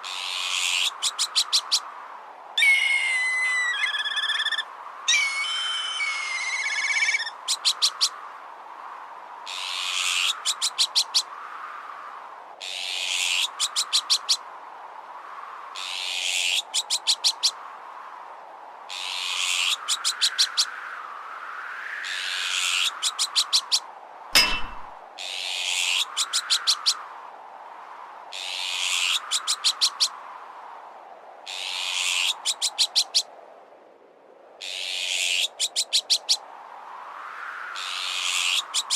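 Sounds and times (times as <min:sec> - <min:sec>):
gusting wind: 0:00.0 - 0:38.9
magpie alarm call: 0:02.6 - 0:07.7
whistling gliding bird call: 0:02.6 - 0:07.7
metallic clang: 0:24.4 - 0:25.0.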